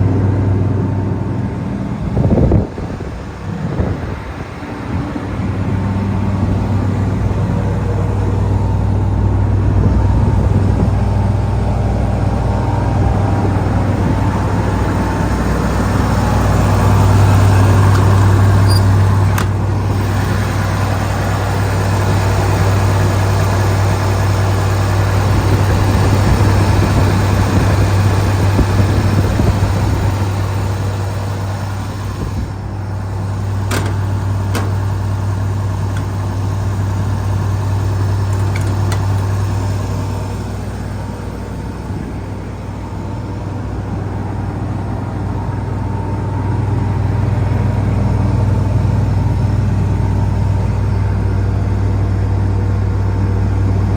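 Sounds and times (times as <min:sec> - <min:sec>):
milling machine diesel engine: 0:00.0 - 0:53.9
sharp clicks: 0:17.0 - 0:20.0.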